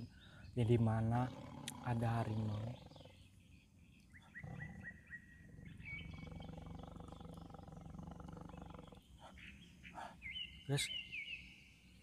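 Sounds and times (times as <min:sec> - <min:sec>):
bird chirping: 0:00.0 - 0:12.0
faint low growl: 0:00.7 - 0:03.4, 0:04.3 - 0:09.1.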